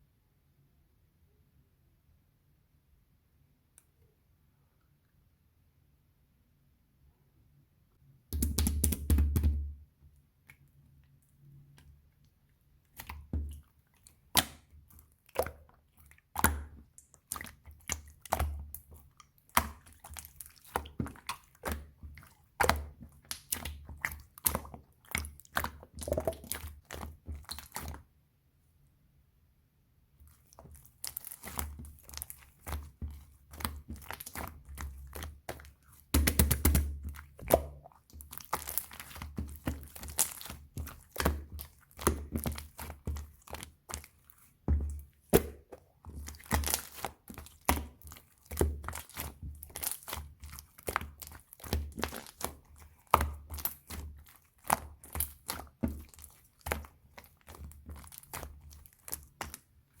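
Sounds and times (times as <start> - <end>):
slime squeezed by hand crackling: 30.4 - 44.4, 45.2 - 59.7.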